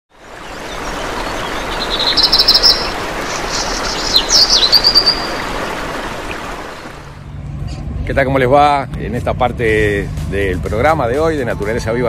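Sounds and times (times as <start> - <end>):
birds chirping and trilling: 0.1 - 7.0
rushing background hiss: 0.1 - 7.2
down-sweeping bird calls: 0.2 - 6.9.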